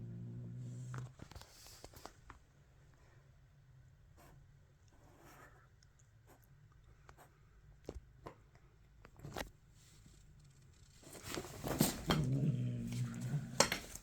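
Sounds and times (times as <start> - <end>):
cat growling: 0.0 - 1.2, 11.6 - 14.0.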